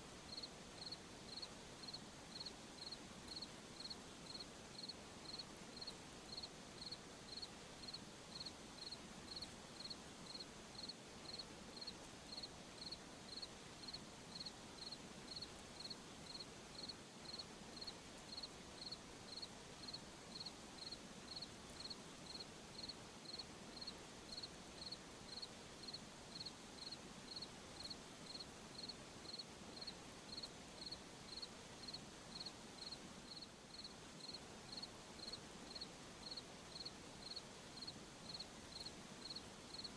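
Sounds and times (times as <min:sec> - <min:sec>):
faint background hiss: 0:00.0 - 0:39.9
cricket chirping: 0:00.3 - 0:39.9.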